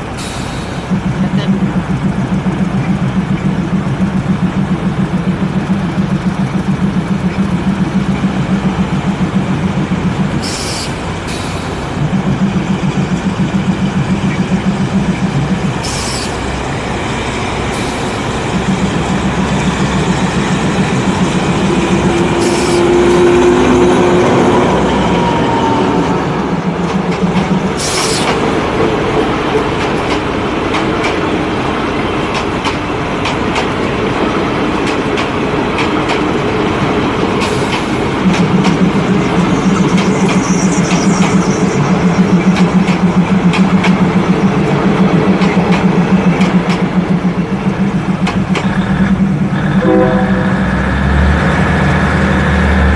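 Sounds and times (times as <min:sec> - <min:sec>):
train wheels rumbling: 0:00.0 - 0:52.9
low pulsing drone: 0:38.0 - 0:52.9.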